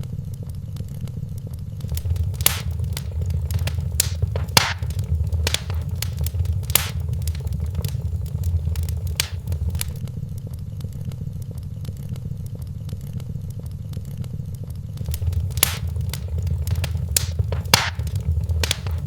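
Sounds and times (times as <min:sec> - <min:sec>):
fire pops: 0:01.8 - 0:10.0, 0:15.0 - 0:19.0
low rumble of flames: 0:01.8 - 0:10.0, 0:15.0 - 0:19.0
wood fire crackling: 0:01.8 - 0:10.0, 0:15.0 - 0:19.0.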